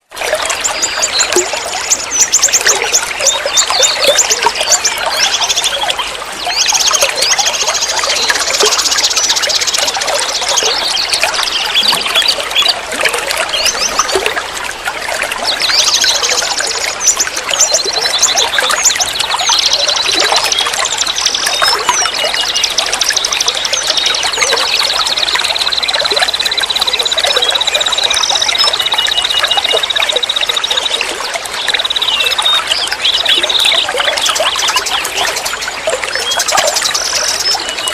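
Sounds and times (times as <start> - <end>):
river water flowing: 0.0 - 37.9
birds singing and trilling: 0.3 - 37.9.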